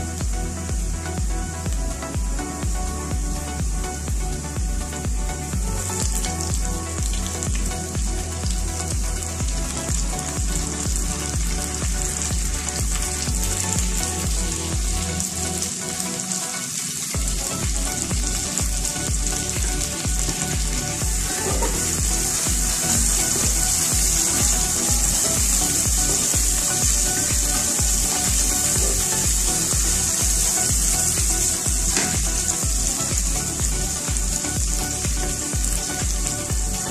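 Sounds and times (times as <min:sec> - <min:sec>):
background music with steady beat: 0:00.0 - 0:36.9
onion and garlic sizzling in oil: 0:07.4 - 0:36.9.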